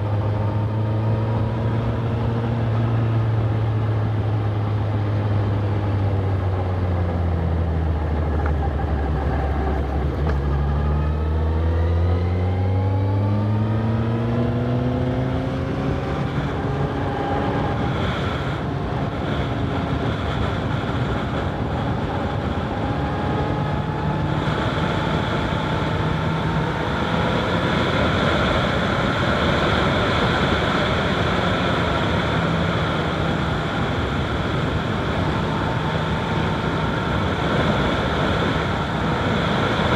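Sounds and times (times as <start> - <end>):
motorcycle engine accelerating: 0.0 - 39.9
wind noise on microphone: 14.5 - 39.9.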